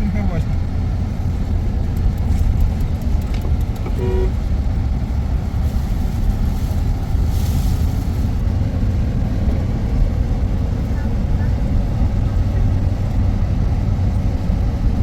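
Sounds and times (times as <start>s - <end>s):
vehicle rumbling on the move: 0.0s - 15.0s
short horn toot: 3.8s - 4.4s.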